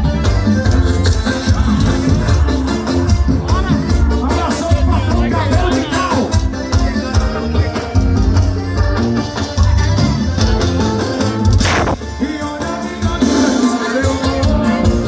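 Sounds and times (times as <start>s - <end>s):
loud live band music: 0.0s - 15.0s
heavy pulsing bass: 11.5s - 12.4s
brief sweeping sound: 11.6s - 12.2s.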